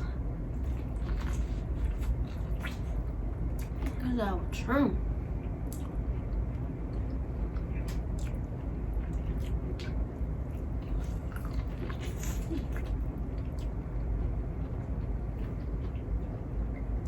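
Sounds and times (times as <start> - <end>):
steady low hum: 0.0 - 17.0
person chewing food: 0.5 - 4.0, 5.4 - 17.0
wet mouth clicks and smacks: 7.8 - 8.5.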